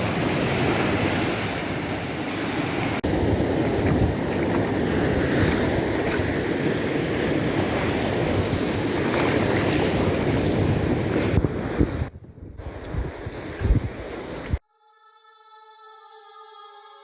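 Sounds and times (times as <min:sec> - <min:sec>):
waves washing onto stony beach: 0:00.0 - 0:11.8
wind buffeting microphone: 0:00.0 - 0:14.6.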